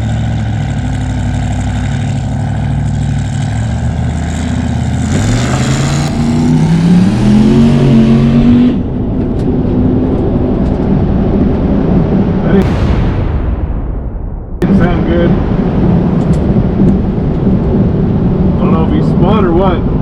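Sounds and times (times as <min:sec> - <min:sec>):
truck engine accelerating hard: 0:00.0 - 0:12.4
low rumble: 0:06.0 - 0:20.0.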